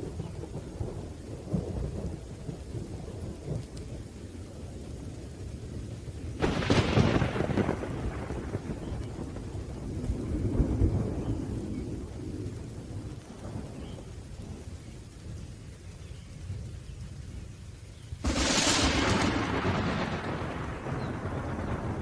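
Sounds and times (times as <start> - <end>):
low rolling thunder: 0.0 - 17.2, 18.2 - 22.0
rain: 0.0 - 22.0
sharp loud thunderclap: 6.4 - 9.5, 18.2 - 22.0.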